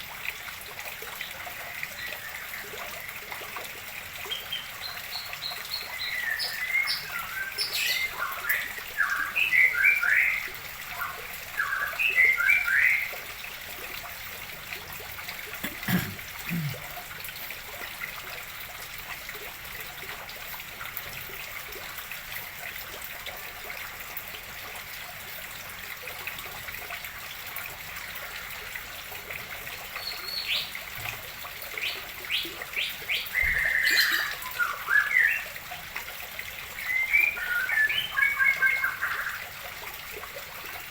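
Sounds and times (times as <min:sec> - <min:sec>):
water trickling into pond: 0:00.0 - 0:40.9
songbirds chirping and singing: 0:32.9 - 0:35.4.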